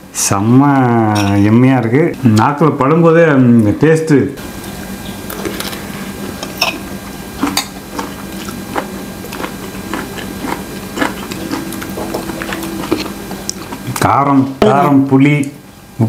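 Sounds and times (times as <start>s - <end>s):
low hum: 4.4s - 16.0s
person chewing food: 5.0s - 14.1s.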